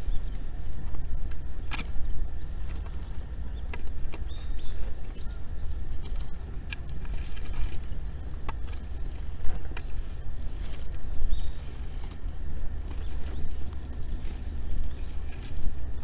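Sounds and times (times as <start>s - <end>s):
bird chirp: 0.0s - 6.4s, 9.6s - 12.2s, 12.8s - 16.0s
low rumble: 0.0s - 16.0s.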